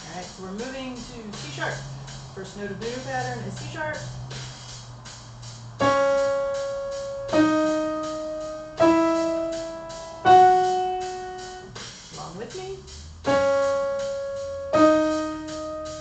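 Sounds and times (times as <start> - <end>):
piano single notes: 5.8 - 11.7, 13.3 - 16.0.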